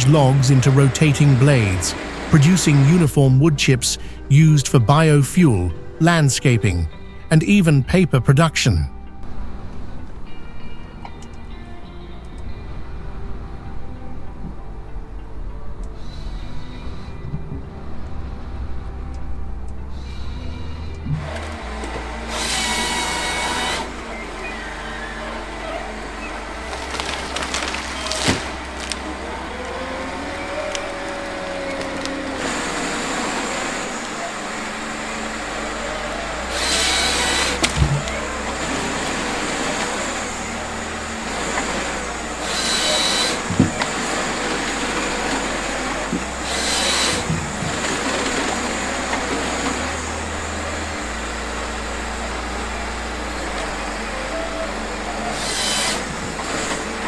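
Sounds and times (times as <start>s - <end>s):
wood chipper droning: 0.0s - 57.0s
wood crunching and knocking: 26.7s - 29.0s.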